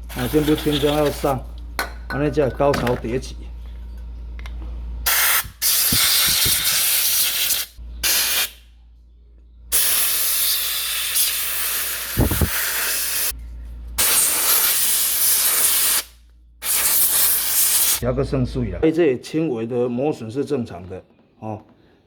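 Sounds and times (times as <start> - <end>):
pressurised spray hissing: 5.1 - 8.5, 9.7 - 13.3, 14.0 - 18.0.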